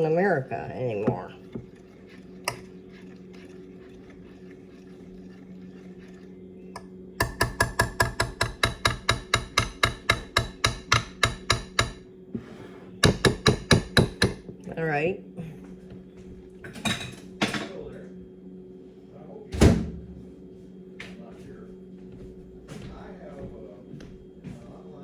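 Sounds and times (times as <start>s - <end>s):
steady low hum: 0.0s - 25.0s
spoon beating in a bowl: 6.8s - 12.0s, 13.0s - 14.4s.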